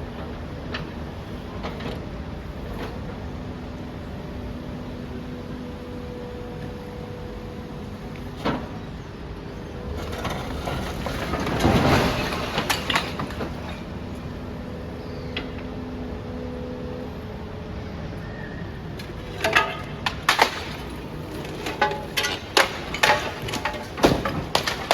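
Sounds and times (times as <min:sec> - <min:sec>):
demolition machinery humming: 0:00.0 - 0:24.9
rubble crunching and crashing: 0:09.8 - 0:14.3, 0:19.0 - 0:24.9.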